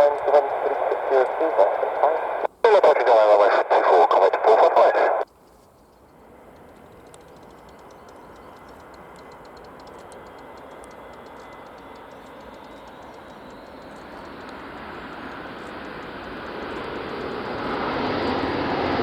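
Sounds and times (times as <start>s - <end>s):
turboprop engines drone: 0.0s - 19.0s
faint rapid ticking: 5.2s - 17.4s.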